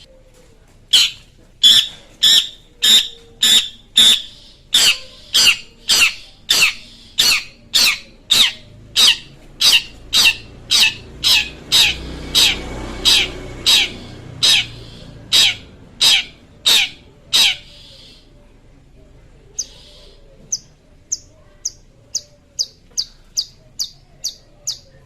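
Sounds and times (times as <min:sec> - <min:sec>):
bird giving harsh calls: 0:00.9 - 0:18.3.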